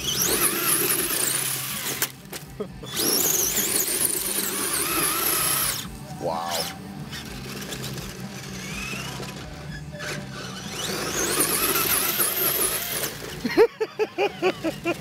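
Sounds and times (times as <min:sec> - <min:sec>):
toy truck motor whining: 0:00.0 - 0:15.0.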